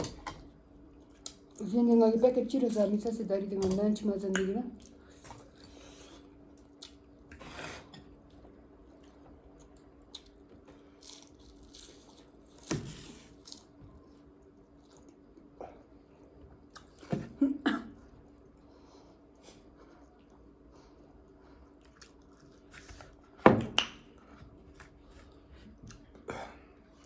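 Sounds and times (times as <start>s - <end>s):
faint steady hum: 0.0s - 27.0s
person chewing: 4.8s - 7.4s, 8.9s - 13.8s, 21.7s - 23.2s.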